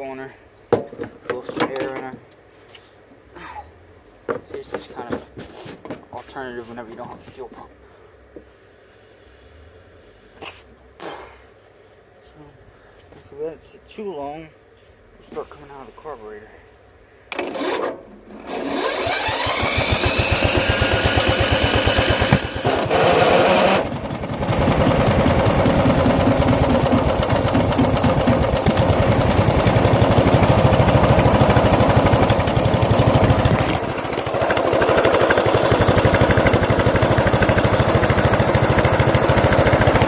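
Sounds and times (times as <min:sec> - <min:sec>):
lawnmower engine running: 0:18.4 - 0:40.0.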